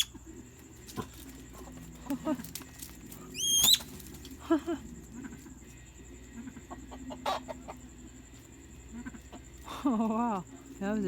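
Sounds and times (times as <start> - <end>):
chickens clucking: 0.0 - 11.0
high rising squawk: 3.3 - 3.9.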